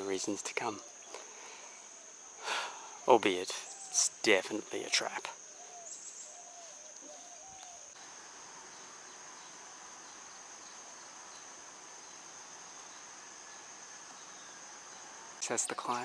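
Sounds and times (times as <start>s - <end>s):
short faint calls: 0.0s - 11.5s
insect chorus shrilling: 0.0s - 16.0s.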